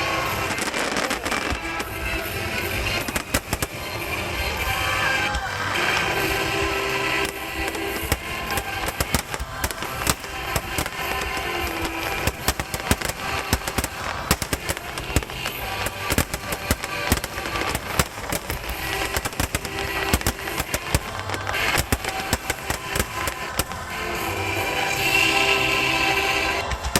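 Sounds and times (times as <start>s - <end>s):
fireworks bangs and crackles: 0.0s - 26.9s
music playing: 0.0s - 26.9s.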